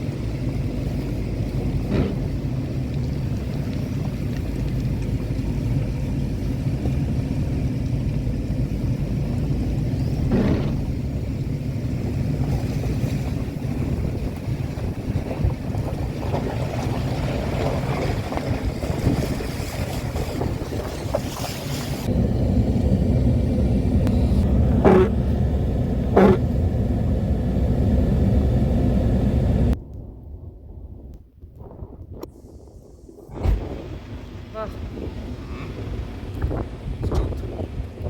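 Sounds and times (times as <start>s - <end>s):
vehicle rumbling on the move: 0.0s - 29.8s, 32.2s - 38.0s.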